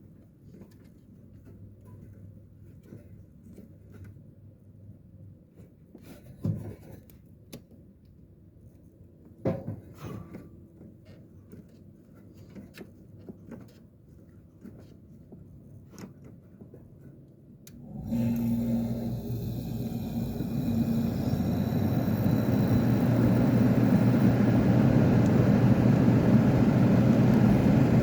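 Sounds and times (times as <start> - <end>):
window air conditioner humming: 17.7 - 28.0.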